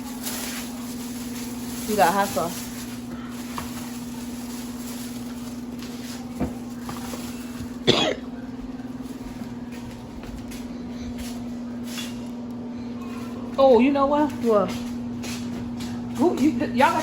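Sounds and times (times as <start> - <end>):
steady low hum: 0.0 - 17.0
person coughing: 7.8 - 8.3.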